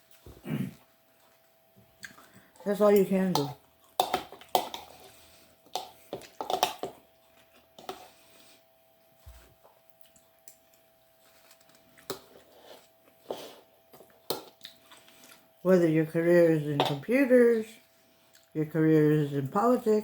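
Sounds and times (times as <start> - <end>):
chewing: 0.0 - 2.6, 9.7 - 13.2, 14.0 - 15.5, 17.8 - 18.6
faint steady hum: 0.0 - 20.0.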